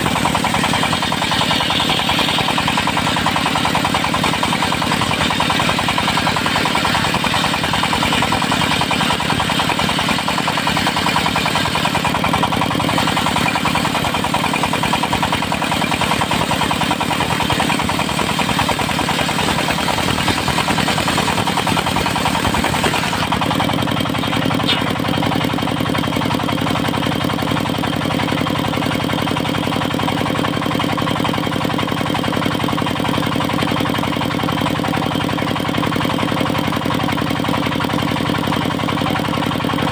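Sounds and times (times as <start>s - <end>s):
saw blade cutting wood: 0.0s - 26.2s
sawmill engine running: 0.0s - 39.9s.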